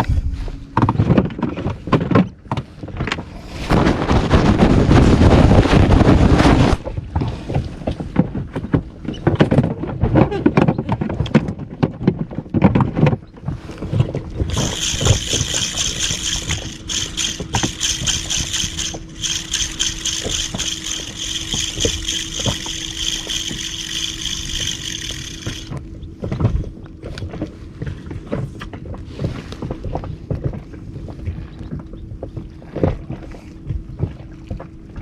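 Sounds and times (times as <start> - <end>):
steady low hum: 14.2 - 28.4
high whine: 14.4 - 25.8.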